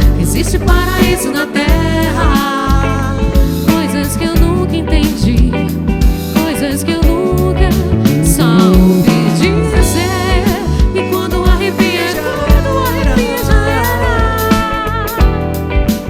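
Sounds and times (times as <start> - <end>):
band music: 0.0 - 16.0
bass: 0.0 - 16.0
steady drum beat: 8.2 - 15.0.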